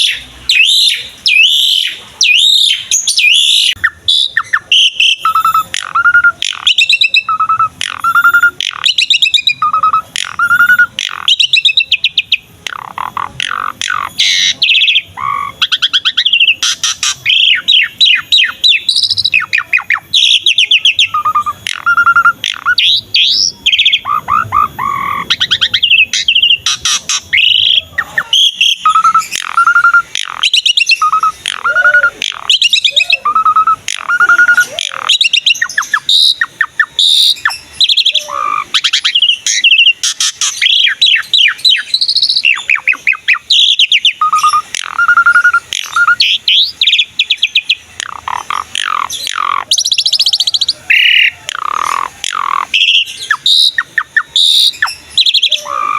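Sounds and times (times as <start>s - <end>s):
starling singing: 0.0s - 55.9s.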